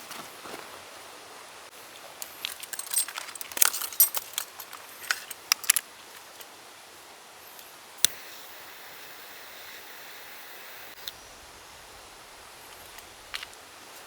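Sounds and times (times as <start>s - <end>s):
steady outdoor hiss: 0.0s - 14.0s
small metal objects clinking: 2.2s - 5.9s.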